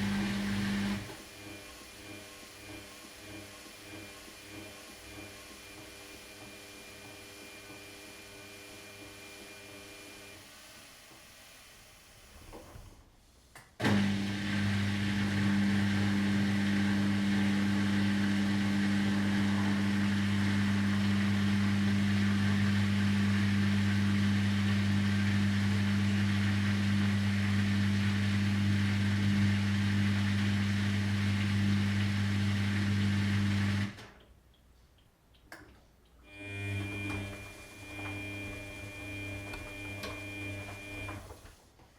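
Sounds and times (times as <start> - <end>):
washing machine motor running: 0.0 - 10.4, 13.9 - 34.0, 36.3 - 41.4.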